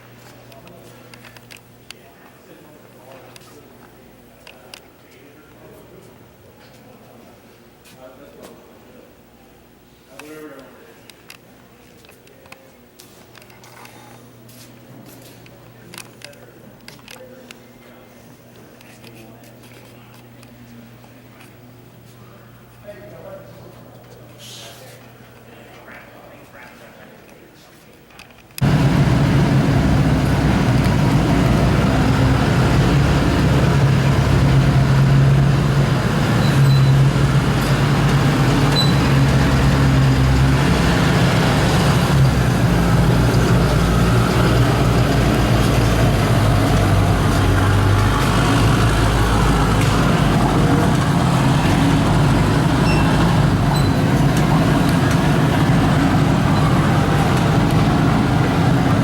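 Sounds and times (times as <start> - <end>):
monster truck engine revving: 28.6 - 59.0.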